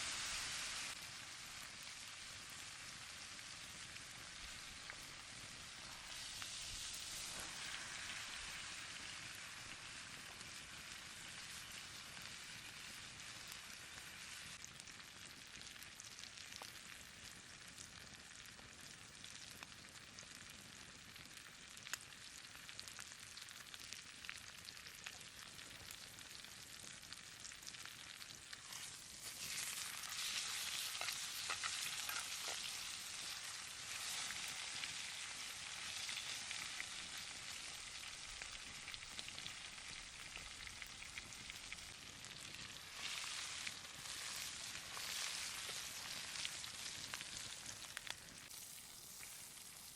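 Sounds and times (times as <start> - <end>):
steak sizzling: 0.0 - 16.9, 21.7 - 49.9.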